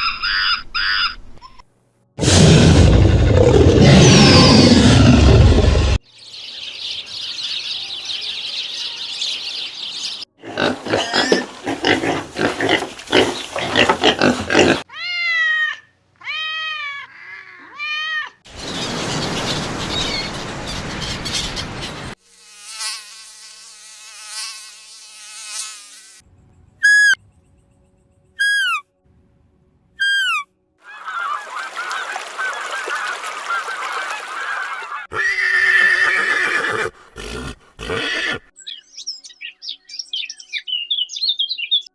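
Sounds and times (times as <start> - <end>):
rising-and-falling pitched calls: 2.4 - 14.8, 30.0 - 36.9
noisy animal calls: 10.4 - 15.0.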